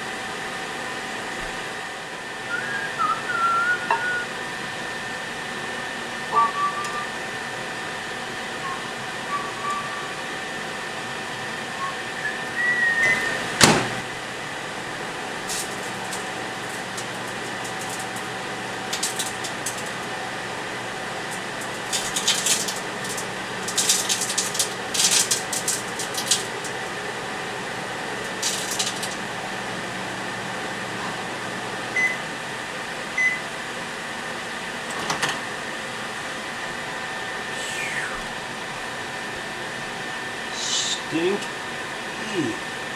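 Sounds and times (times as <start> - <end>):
microwave oven hum: 0.0 - 42.9
crackling and snapping sparks: 15.4 - 29.5.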